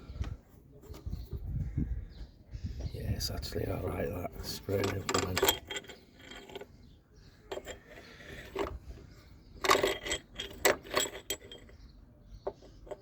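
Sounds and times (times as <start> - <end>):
metal tools clinking: 4.4 - 8.8, 9.6 - 13.0.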